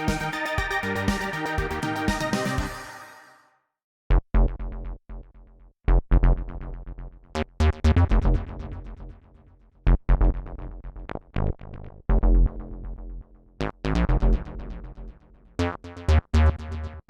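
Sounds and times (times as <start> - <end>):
plucky synthesizer notes with delay: 0.0 - 3.3.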